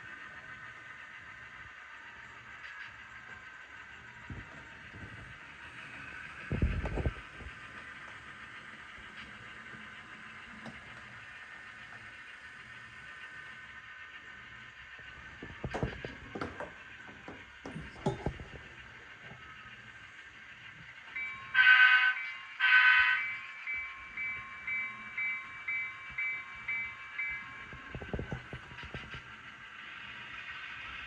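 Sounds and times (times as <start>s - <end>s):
diesel engine running: 3.2s - 30.0s
train horn blasts: 21.5s - 23.4s.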